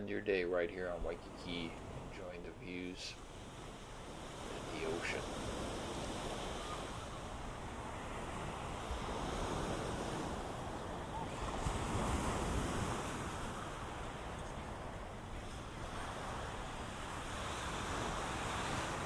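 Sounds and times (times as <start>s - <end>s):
ocean waves washing: 0.0s - 19.0s
wind on microphone: 0.9s - 19.0s.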